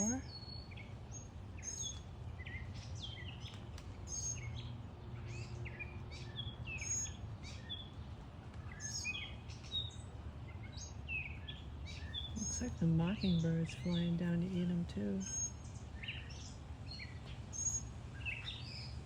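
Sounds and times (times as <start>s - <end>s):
songbirds chirping: 0.0s - 19.0s
low background rumble: 10.2s - 19.0s.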